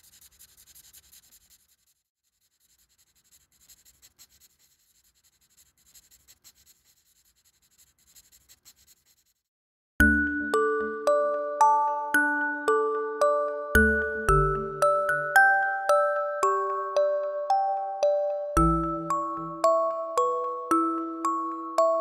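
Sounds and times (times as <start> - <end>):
pencil scratching on paper: 0.0 - 9.5
bright chiming music: 10.0 - 22.0.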